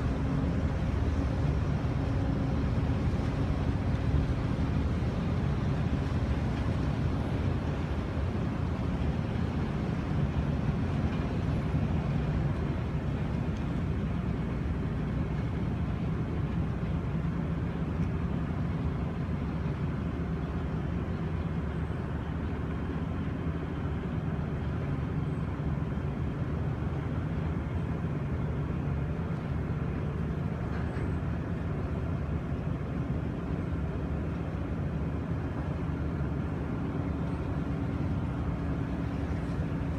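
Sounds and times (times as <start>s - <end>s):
ferry engines droning: 0.0s - 39.9s.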